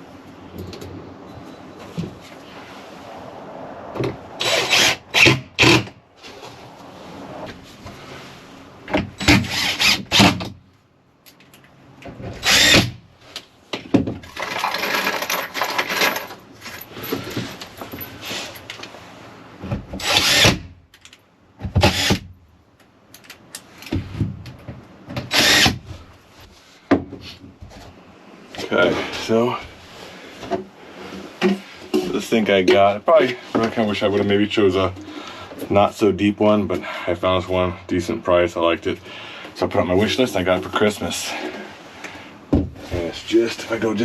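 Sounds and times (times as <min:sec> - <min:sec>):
power drill driving screws: 0:04.4 - 0:05.9, 0:09.2 - 0:10.4, 0:12.4 - 0:13.0, 0:20.0 - 0:20.6, 0:21.8 - 0:22.2, 0:25.3 - 0:25.8.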